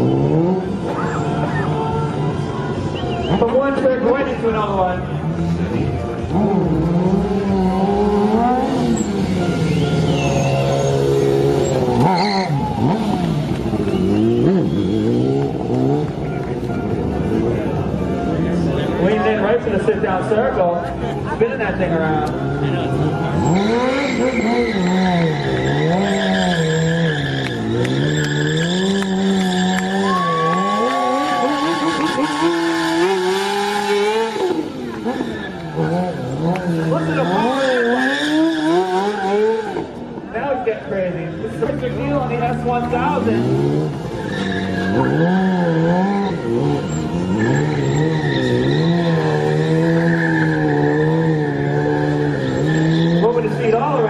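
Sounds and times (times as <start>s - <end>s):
motorcycle engine at high revs: 6.3s - 16.3s, 23.4s - 39.9s.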